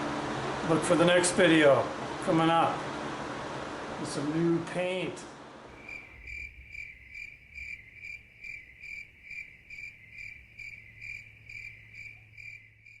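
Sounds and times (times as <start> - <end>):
low hum: 5.6 - 12.8
cricket chirping: 5.7 - 13.0.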